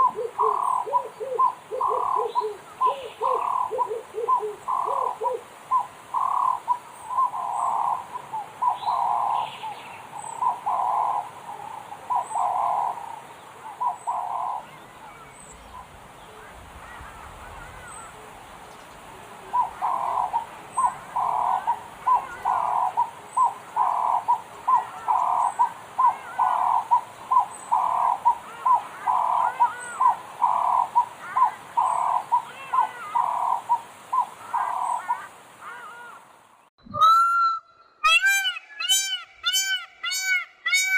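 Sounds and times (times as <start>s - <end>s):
bird hooting: 0.0s - 9.5s, 10.4s - 13.0s, 19.4s - 36.2s, 36.9s - 40.9s
higher bird chirps: 0.0s - 11.4s.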